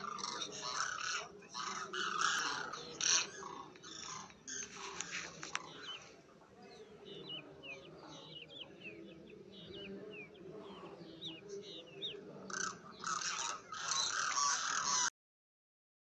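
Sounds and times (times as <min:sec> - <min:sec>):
rough bird calls: 0:00.0 - 0:15.1.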